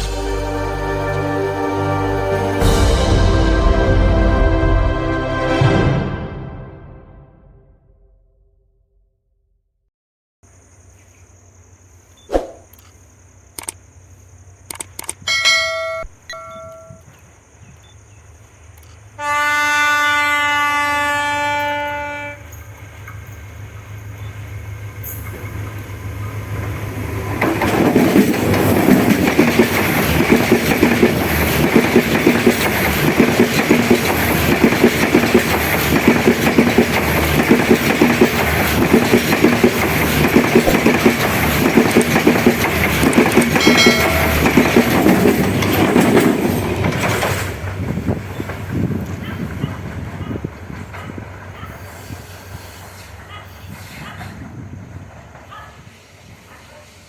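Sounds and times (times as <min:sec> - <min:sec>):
train horn blast: 0:00.0 - 0:07.6, 0:19.2 - 0:22.6, 0:43.5 - 0:44.8
train rumbling past: 0:00.0 - 0:07.8, 0:15.5 - 0:57.0
wheels clacking over rail joints: 0:25.0 - 0:51.9.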